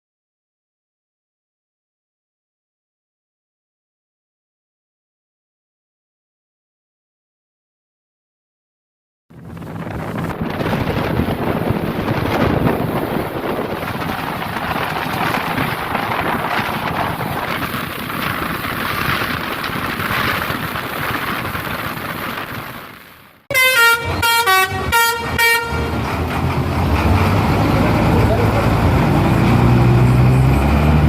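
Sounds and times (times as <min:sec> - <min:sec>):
wind noise: 0:09.3 - 0:23.2
engine rumble: 0:09.3 - 0:31.0
horn short toots: 0:23.5 - 0:26.0.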